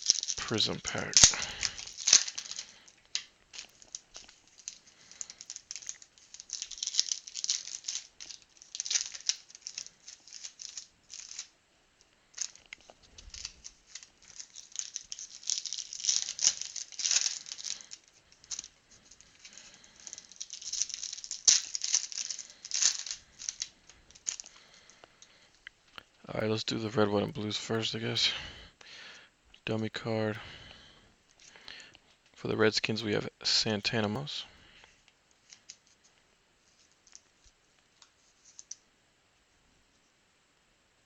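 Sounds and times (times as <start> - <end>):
foil wrappers crinkling and tearing: 0.0 - 11.5, 12.3 - 25.4.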